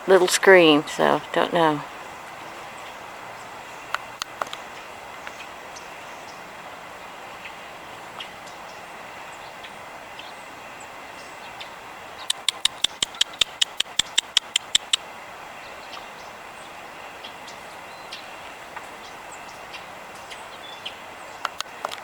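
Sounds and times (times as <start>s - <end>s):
rapid sharp clicks: 12.3s - 15.0s.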